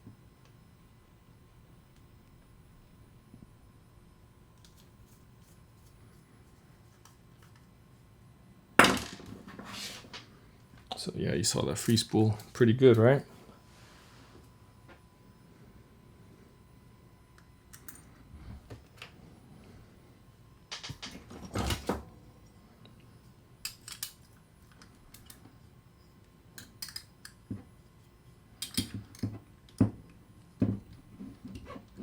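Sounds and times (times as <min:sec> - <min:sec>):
metal parts clicking and clattering: 0:20.7 - 0:21.8, 0:23.6 - 0:25.4, 0:26.6 - 0:27.4, 0:28.6 - 0:29.2.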